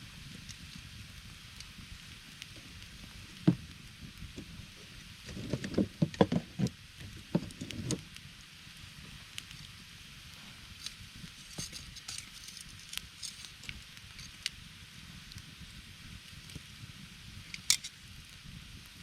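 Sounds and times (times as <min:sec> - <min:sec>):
campfire crackling: 0:00.0 - 0:19.0
sharp fire pops: 0:00.2 - 0:08.3.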